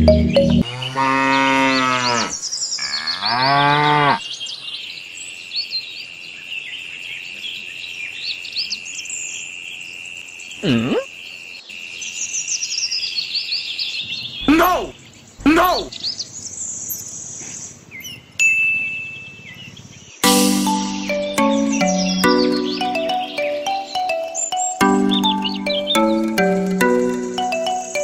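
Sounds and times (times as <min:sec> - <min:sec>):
birds chirping: 0:00.0 - 0:05.1, 0:10.3 - 0:18.4, 0:19.2 - 0:28.0
cow mooing: 0:00.6 - 0:04.2.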